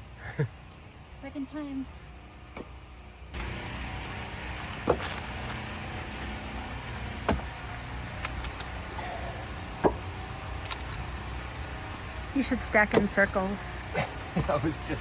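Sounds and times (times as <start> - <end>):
low machine hum: 0.0 - 15.0
firewood knocking against pile: 4.6 - 5.7, 6.9 - 8.7, 9.8 - 11.0.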